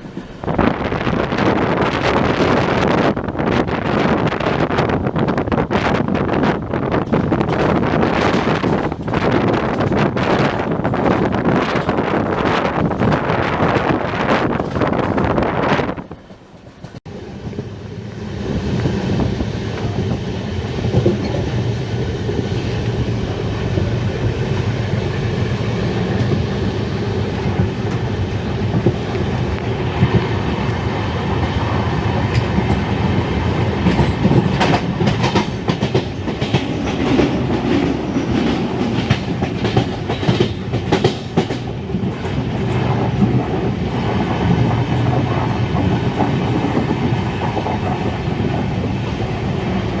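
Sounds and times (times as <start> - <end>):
train rumbling on rails: 0.0 - 50.0
wheels clicking over rail joints: 16.8 - 50.0.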